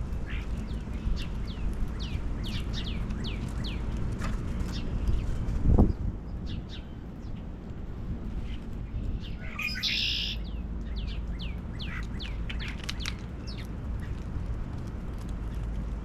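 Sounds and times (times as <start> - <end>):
steady low rumble: 0.0 - 16.0
small birds chirping: 0.1 - 7.5, 8.4 - 14.1.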